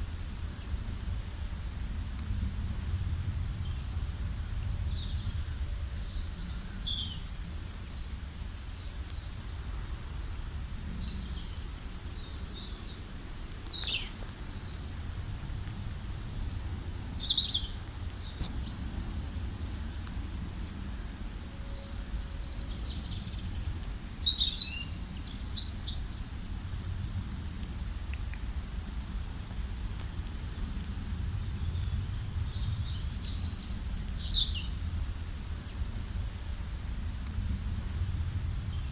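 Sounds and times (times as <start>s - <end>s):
steady low rumble: 0.0s - 38.9s
songbirds chirping: 3.2s - 27.1s.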